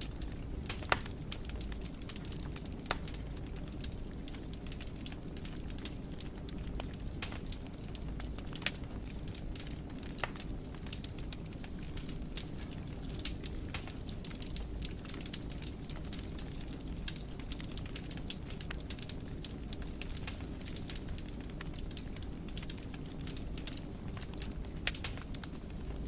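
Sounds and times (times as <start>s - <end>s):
flames rumbling: 0.0s - 26.0s
wood fire crackling: 0.0s - 26.0s.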